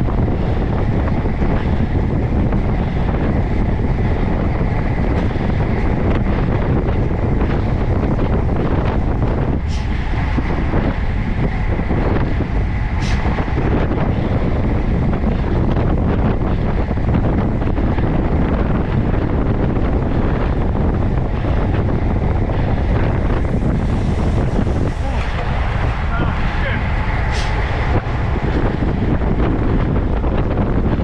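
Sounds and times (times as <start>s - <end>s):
wind rushing over microphone: 0.0s - 31.0s.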